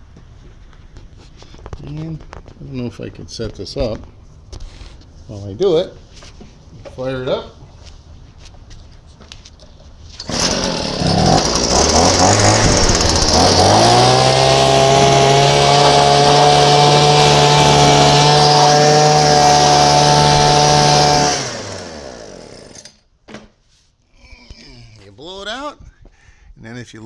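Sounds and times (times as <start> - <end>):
leaf blower running: 10.2 - 22.9.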